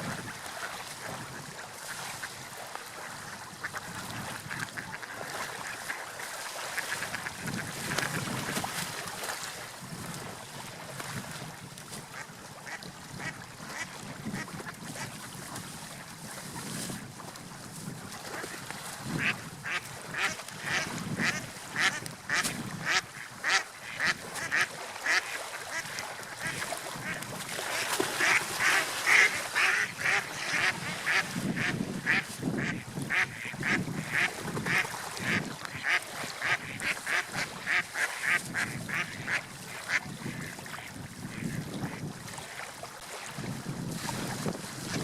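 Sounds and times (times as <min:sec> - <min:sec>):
ducks quacking: 0:03.1 - 0:06.0, 0:19.2 - 0:42.0.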